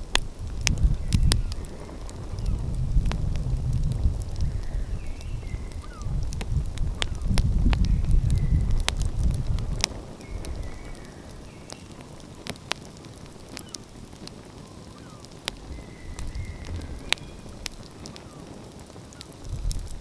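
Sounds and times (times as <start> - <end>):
wood fire crackling and popping: 0.0 - 20.0
low rumble: 15.5 - 17.9.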